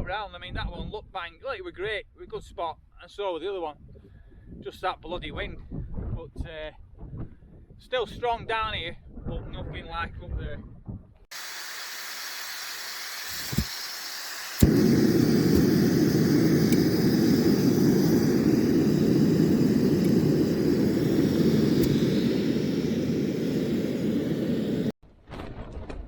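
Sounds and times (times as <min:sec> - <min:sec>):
strong wind on microphone: 0:03.8 - 0:07.8, 0:08.7 - 0:11.2, 0:14.6 - 0:25.0.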